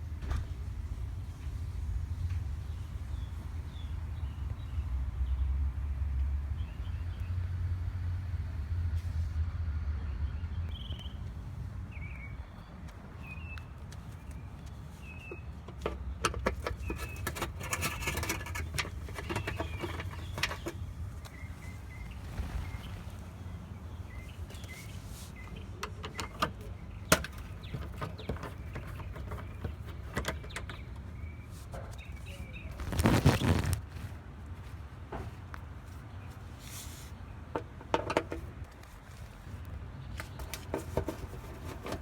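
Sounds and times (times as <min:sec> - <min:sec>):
birds chirping: 0:10.0 - 0:33.8
clicking and rattling: 0:15.7 - 0:21.4, 0:25.8 - 0:31.0
steady low rumble: 0:21.4 - 0:24.6.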